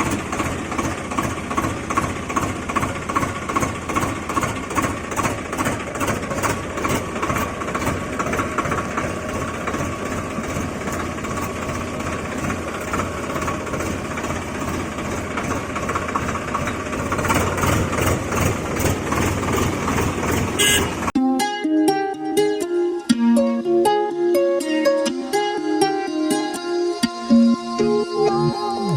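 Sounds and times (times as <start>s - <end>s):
tractor engine running: 0.0s - 21.2s
plucked-string music: 21.1s - 28.9s.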